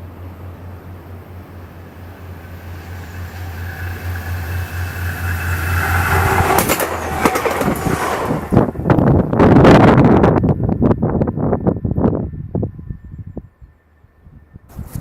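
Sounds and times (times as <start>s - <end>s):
wheels clacking on rails: 0.0s - 10.2s
train passing: 0.0s - 12.8s.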